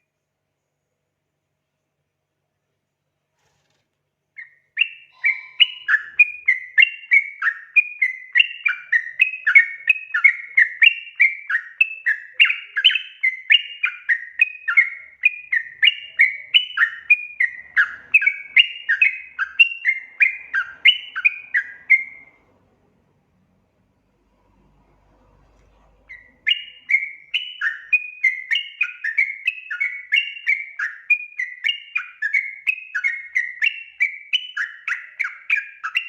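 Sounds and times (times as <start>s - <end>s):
bulbul singing: 4.4s - 22.6s, 26.0s - 36.0s.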